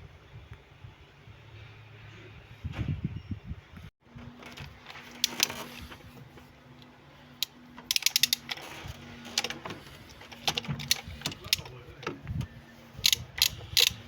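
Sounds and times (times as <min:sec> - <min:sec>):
ratchet wrench clicking: 0:07.4 - 0:08.6, 0:13.0 - 0:14.0.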